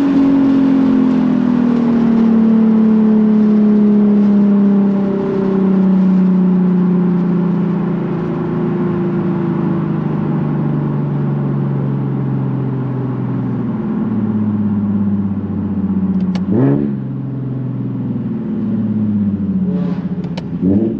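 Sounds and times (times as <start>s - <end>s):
click: 16.1s - 16.5s
car engine revs falling: 19.6s - 20.9s
sharp engine rev blip: 19.6s - 20.9s.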